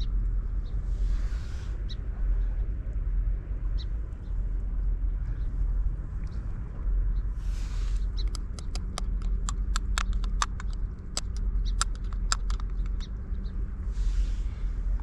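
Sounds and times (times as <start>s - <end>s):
steady low rumble: 0.0s - 15.0s
plastic containers clicking and tapping: 8.3s - 13.0s.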